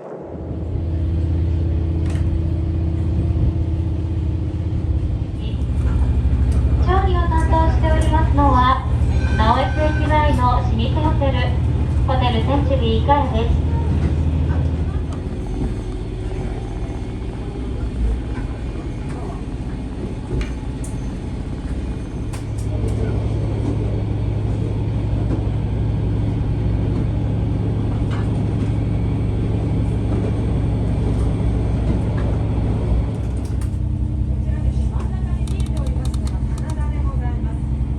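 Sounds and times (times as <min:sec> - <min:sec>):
low engine drone: 0:00.0 - 0:37.9
railcar rumble: 0:00.0 - 0:37.9
light clicks: 0:35.4 - 0:36.8.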